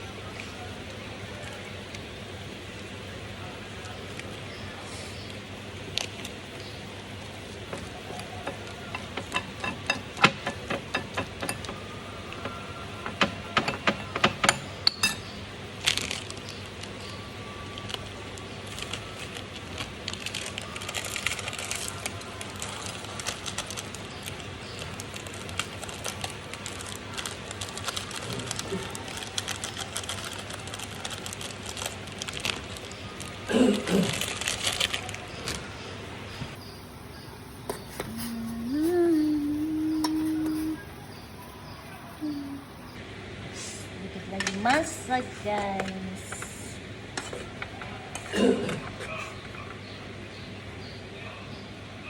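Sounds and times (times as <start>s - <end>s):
soft scraping and rustling: 36.3s - 43.0s.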